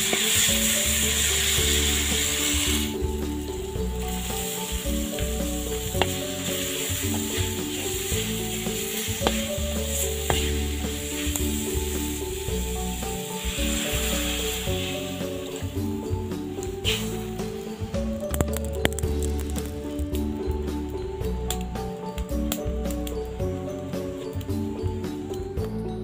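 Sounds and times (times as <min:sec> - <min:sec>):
paste and leaves sizzling in wok: 0:00.0 - 0:20.1
background music with melody: 0:00.0 - 0:26.0.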